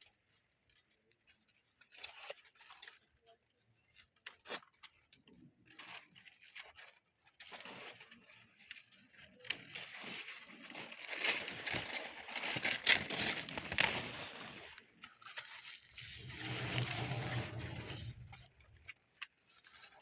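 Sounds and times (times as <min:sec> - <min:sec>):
rustling and crinkling: 0:00.0 - 0:20.0.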